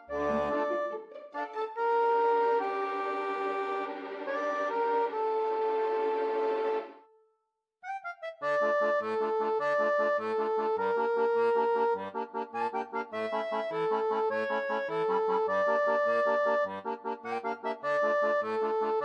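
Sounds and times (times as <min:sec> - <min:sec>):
upbeat instrumental tune: 0:00.0 - 0:07.0
background music: 0:00.0 - 0:07.1
short rising notes: 0:00.1 - 0:07.0.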